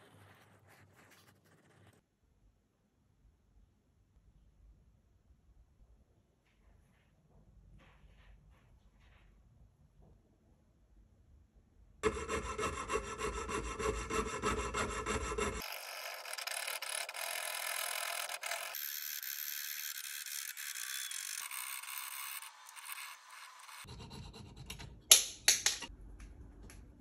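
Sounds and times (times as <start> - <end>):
saw blade rasping through metal: 12.0 - 24.6.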